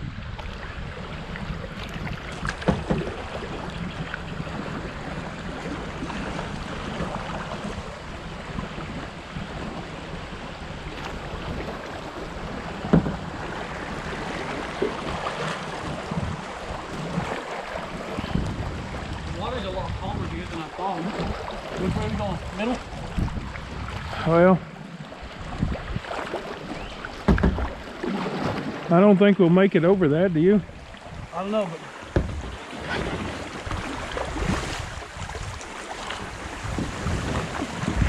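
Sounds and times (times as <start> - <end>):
water splashing around a hull: 0.0 - 38.0
wind buffeting microphone: 0.0 - 38.0
sharp knocks: 27.2 - 27.7, 32.1 - 32.5.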